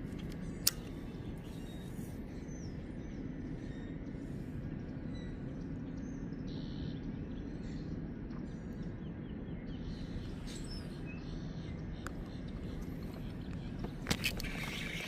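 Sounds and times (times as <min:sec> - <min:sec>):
birds chirping: 0:00.0 - 0:15.0
low outdoor rumble: 0:00.0 - 0:15.0
sharp click: 0:00.2 - 0:01.0.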